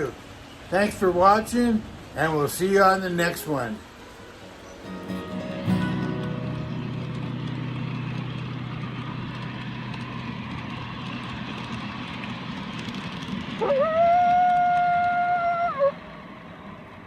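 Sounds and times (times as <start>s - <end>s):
small locomotive running on track: 3.6s - 17.0s.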